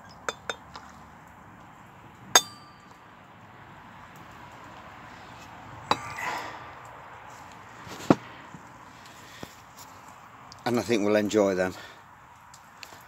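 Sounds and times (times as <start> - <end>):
glasses and bottle clinking: 0.0 - 0.6.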